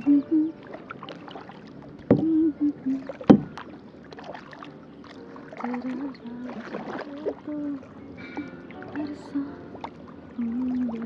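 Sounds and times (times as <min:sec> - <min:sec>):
woman humming: 0:00.0 - 0:00.6, 0:02.1 - 0:03.1, 0:05.7 - 0:08.4, 0:09.0 - 0:09.7, 0:10.4 - 0:11.0
paddle splashing water: 0:00.0 - 0:11.0
sharp knock: 0:03.3 - 0:03.5.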